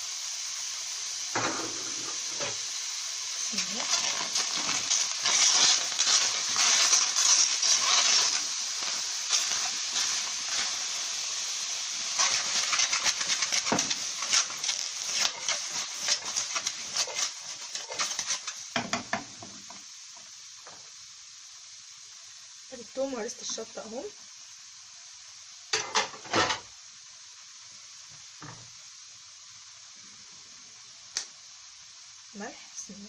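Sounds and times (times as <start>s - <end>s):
food sizzling in a frying pan: 0.0s - 33.0s
crackles and pops: 1.3s - 21.0s, 30.8s - 31.5s.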